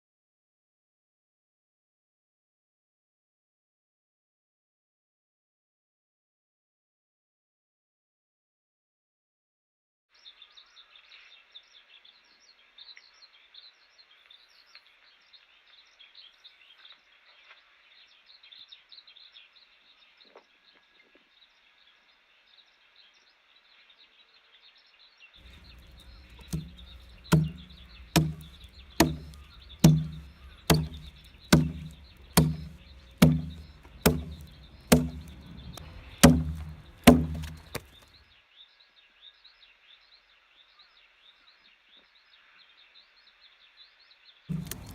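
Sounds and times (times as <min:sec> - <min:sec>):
sharp chopping strikes on wood: 0:25.4 - 0:38.0, 0:44.5 - 0:44.9.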